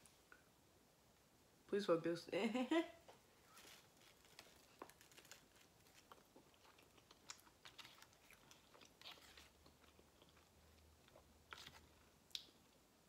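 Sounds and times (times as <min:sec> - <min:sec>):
soft wet chewing: 0:03.6 - 0:12.9.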